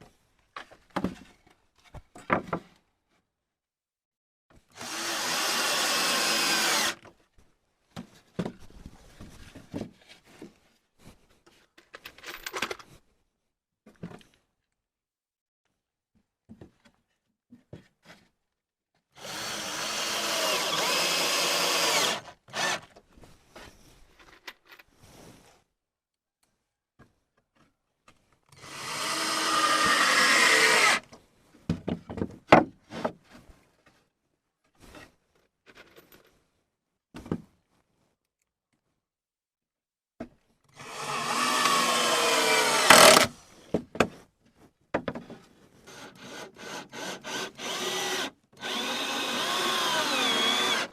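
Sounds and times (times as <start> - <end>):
electric power tool running: 4.8 - 7.0, 19.2 - 22.8, 40.8 - 43.3, 47.6 - 50.9
material knocking and clattering: 44.9 - 45.4.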